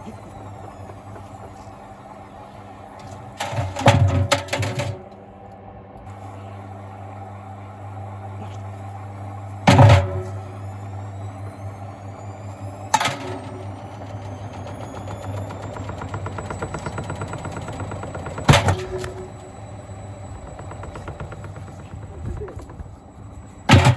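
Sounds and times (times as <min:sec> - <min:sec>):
rising motor whine: 0:00.0 - 0:23.9
washing machine motor hum: 0:00.0 - 0:23.9.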